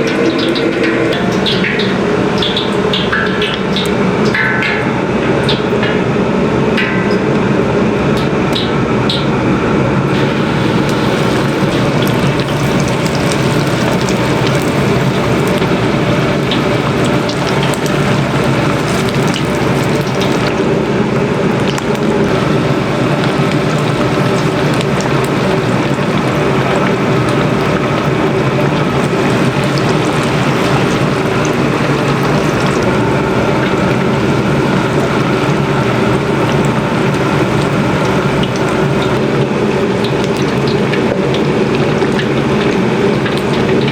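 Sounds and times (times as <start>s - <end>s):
food deep-frying in oil: 0.0s - 9.3s, 10.1s - 43.9s
small crackles: 10.1s - 20.7s.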